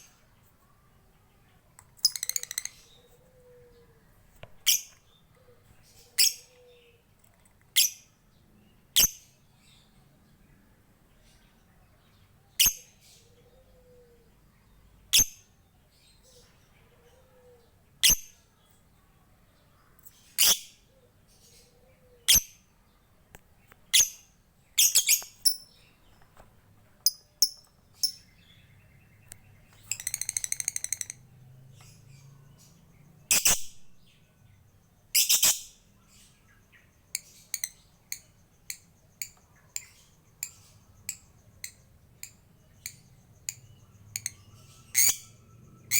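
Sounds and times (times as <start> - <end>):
lovebird chirping: 1.6 - 7.1, 7.7 - 10.6, 11.2 - 18.8, 19.5 - 22.9, 23.6 - 45.9
lovebird rattling trill: 2.0 - 2.8, 27.0 - 28.3, 29.9 - 31.2.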